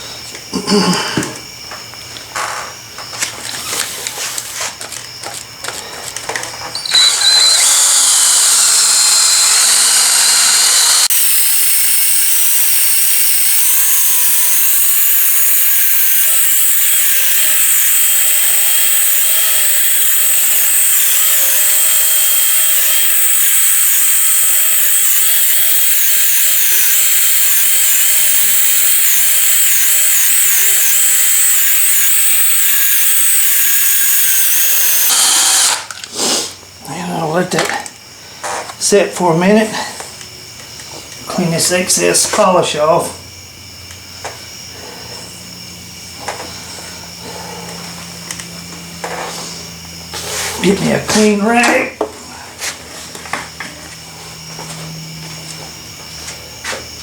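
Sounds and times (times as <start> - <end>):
power drill whining: 5.3 - 36.4.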